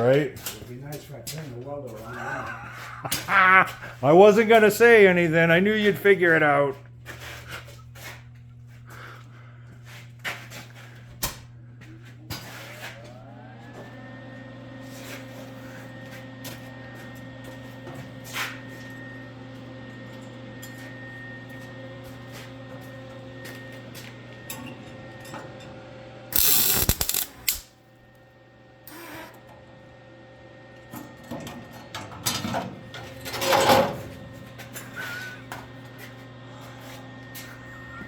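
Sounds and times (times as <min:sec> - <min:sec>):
arc welding crackling: 0:26.3 - 0:27.8
welder humming: 0:26.3 - 0:27.8, 0:28.8 - 0:29.9.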